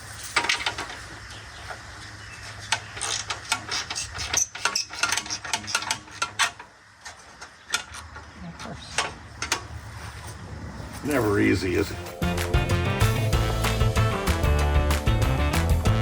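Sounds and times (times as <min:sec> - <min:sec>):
hand tools clanking on metal: 0:00.1 - 0:01.1, 0:02.6 - 0:06.7, 0:08.8 - 0:09.8.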